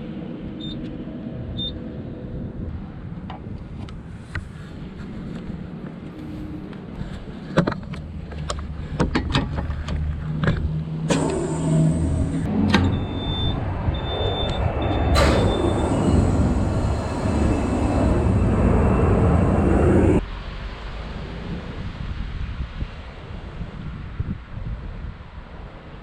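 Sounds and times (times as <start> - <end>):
low steady rumble: 6.4 - 23.4
sharp clicks and knocks: 7.6 - 13.0
loud rushing noise: 11.0 - 22.8.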